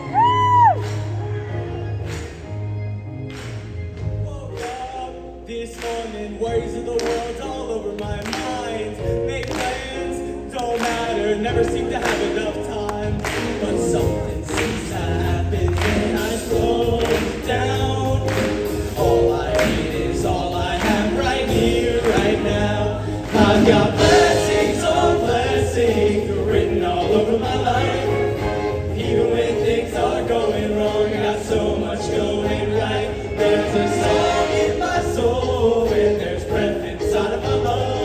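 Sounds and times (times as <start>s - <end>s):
sustained bass notes: 0.0s - 5.6s
band accompaniment: 0.0s - 38.0s
choir singing in harmony: 3.6s - 38.0s
steady drum beat: 13.1s - 31.8s.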